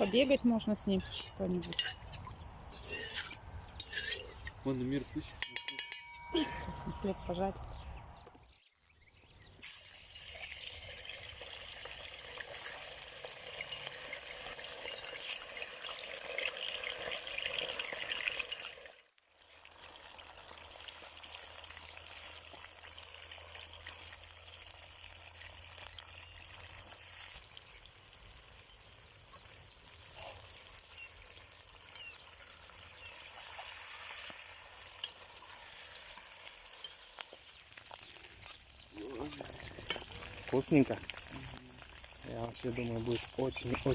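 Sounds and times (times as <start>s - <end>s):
food frying in hot oil: 9.6s - 43.9s.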